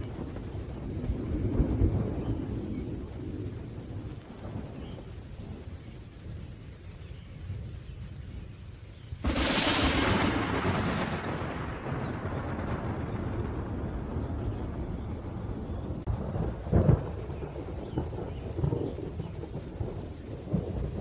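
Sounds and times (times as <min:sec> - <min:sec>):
sharp crack of thunder: 0:00.0 - 0:05.7, 0:09.2 - 0:21.0
rain falling: 0:00.0 - 0:21.0
thunder rumbling: 0:00.0 - 0:21.0.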